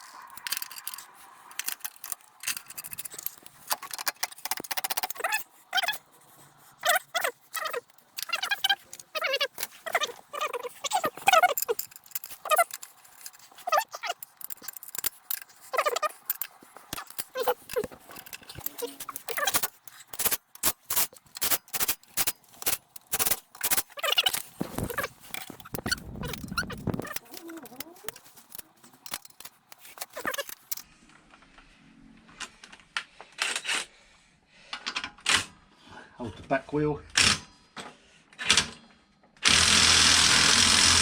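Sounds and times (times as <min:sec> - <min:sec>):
metallic clicks of hand tools: 0:00.0 - 0:06.0, 0:06.8 - 0:30.8.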